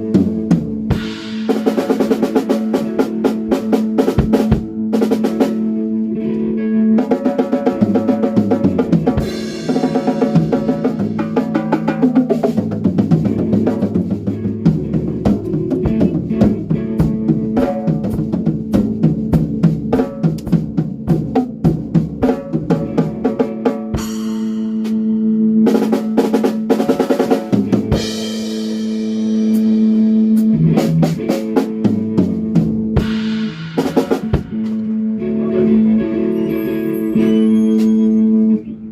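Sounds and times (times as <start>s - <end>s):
held pitched instrument notes: 4.7s - 19.0s, 29.8s - 38.9s.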